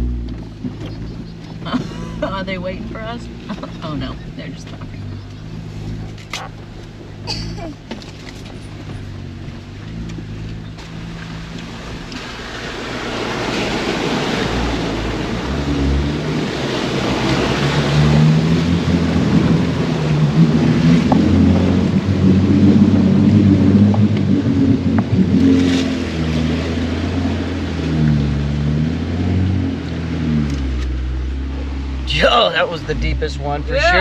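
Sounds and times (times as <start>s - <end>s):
water sloshing and splashing: 0.0s - 33.0s
truck engine straining: 0.0s - 34.0s.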